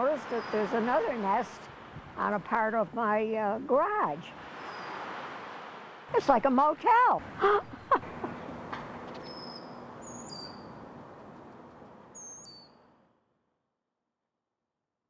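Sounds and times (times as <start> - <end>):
outdoor background noise: 0.0 - 13.5
small birds chirping: 0.1 - 1.2, 4.5 - 5.0, 7.4 - 11.0, 12.1 - 12.8.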